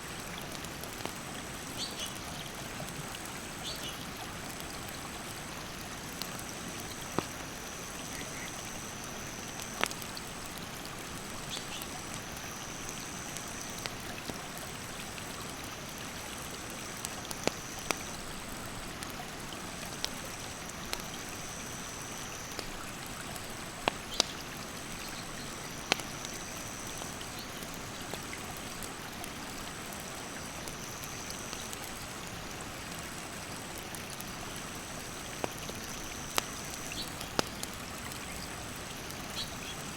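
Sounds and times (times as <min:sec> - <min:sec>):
campfire crackling and popping: 0:00.1 - 0:39.9
high insect calls: 0:06.4 - 0:10.1, 0:11.4 - 0:14.0, 0:19.9 - 0:23.0, 0:23.8 - 0:28.1, 0:30.3 - 0:32.2, 0:34.8 - 0:39.9.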